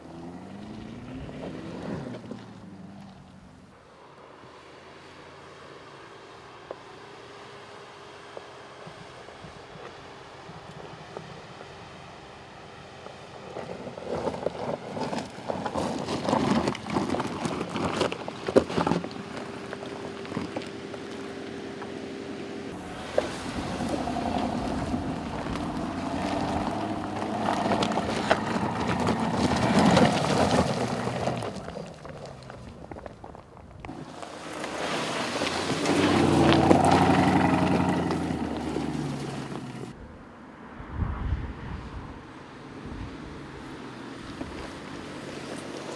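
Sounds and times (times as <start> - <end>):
tyres crunching over rough ground: 8.2 - 40.0, 43.6 - 45.9
car engine driving past: 22.7 - 33.0, 33.9 - 45.9.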